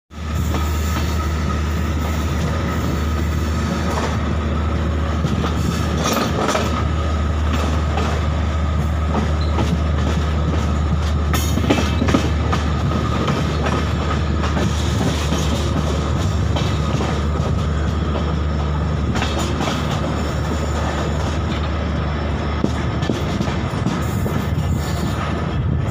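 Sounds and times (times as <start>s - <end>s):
train wheels rumbling on rails: 0.1s - 25.9s
wheels clicking over rail joints: 5.2s - 21.8s.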